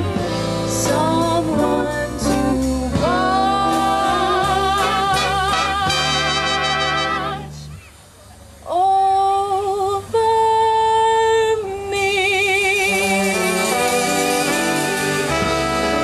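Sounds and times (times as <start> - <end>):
swing band music with brass: 0.0 - 7.8, 12.6 - 16.0
woman singing with vibrato: 0.0 - 7.8, 8.7 - 16.0.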